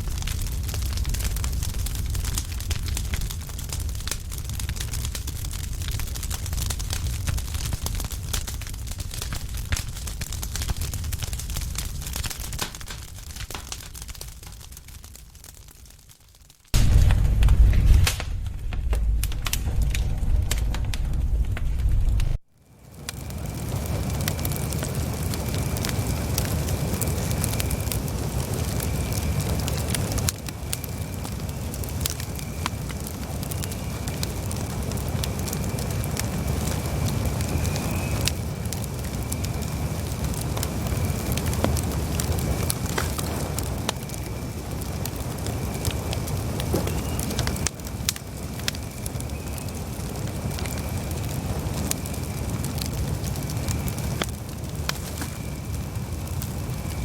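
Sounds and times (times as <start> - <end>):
campfire crackling: 0.0 - 57.0
low rumble: 16.8 - 22.4
faint whistle-like tone: 36.9 - 38.3, 46.7 - 47.6, 48.8 - 49.8.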